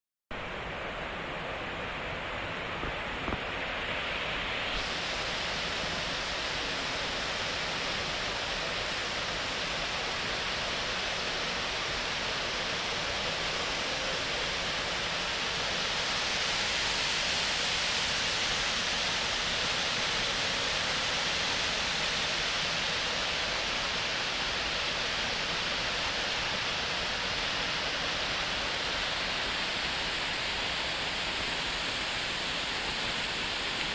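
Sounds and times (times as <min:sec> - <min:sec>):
river rushing over rocks: 0:00.6 - 0:33.9.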